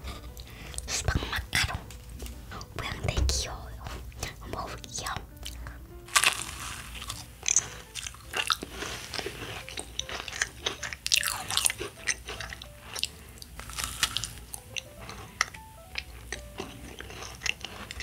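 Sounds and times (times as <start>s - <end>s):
crunchy chewing: 3.9s - 18.0s
biting into a macaron: 6.1s - 18.0s.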